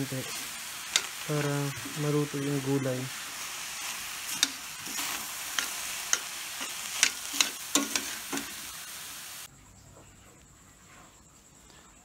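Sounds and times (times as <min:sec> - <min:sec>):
filling sizzling in a pan: 0:00.0 - 0:09.5
metal spoon scraping a pan: 0:03.4 - 0:08.8.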